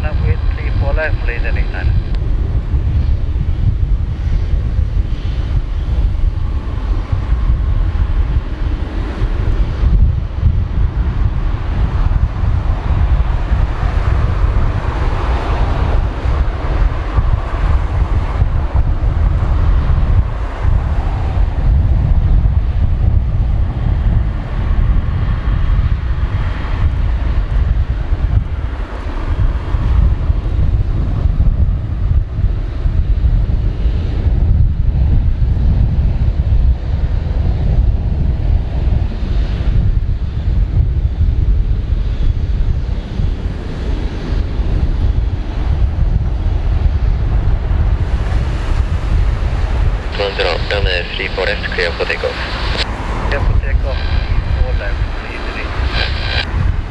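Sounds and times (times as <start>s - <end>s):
wind buffeting microphone: 0.0s - 56.9s
faint steady hiss: 50.1s - 56.4s.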